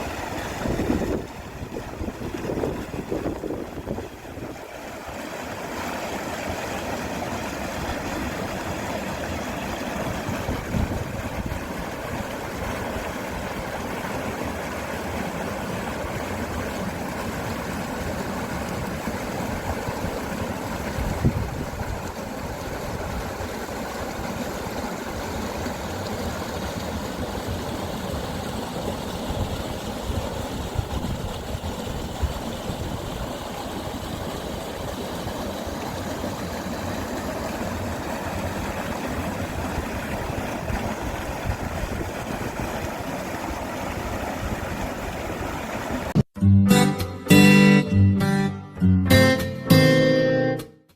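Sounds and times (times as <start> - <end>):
mountain stream rushing: 0.0 - 46.2.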